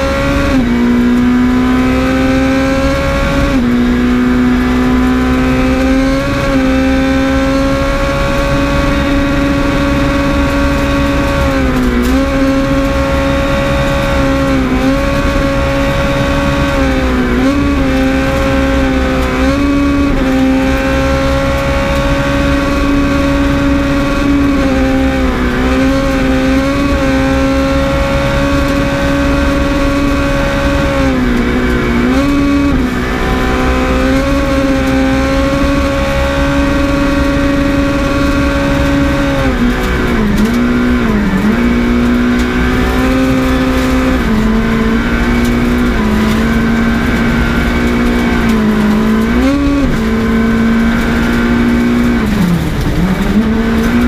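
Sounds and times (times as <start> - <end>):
car engine at steady revs: 0.0 - 54.0
tyres rumbling on gravel: 2.6 - 54.0.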